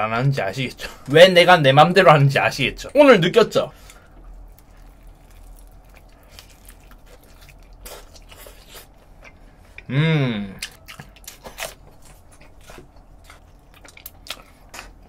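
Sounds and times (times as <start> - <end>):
chewing crispy chicken: 3.8 - 9.9, 10.5 - 15.0
man humming: 9.9 - 10.6.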